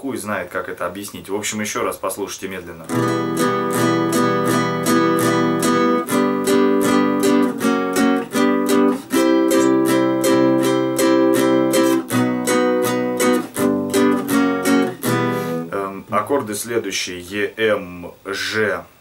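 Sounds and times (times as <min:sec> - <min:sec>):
acoustic guitar strummed slowly: 0:02.9 - 0:15.8.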